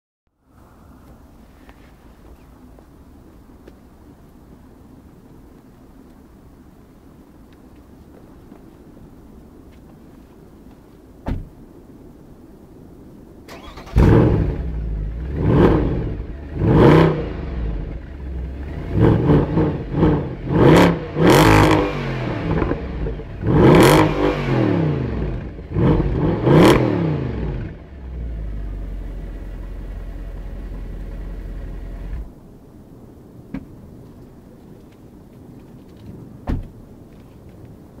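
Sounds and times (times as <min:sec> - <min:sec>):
car engine revving: 0:13.5 - 0:32.3
car engine idling: 0:27.4 - 0:32.3.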